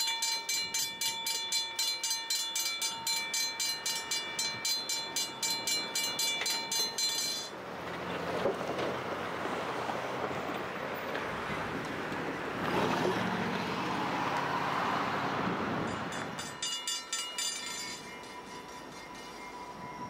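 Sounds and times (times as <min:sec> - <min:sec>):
steady high tones: 0:00.0 - 0:07.5, 0:15.9 - 0:20.0
freight train rumbling: 0:02.8 - 0:13.6, 0:15.3 - 0:20.0.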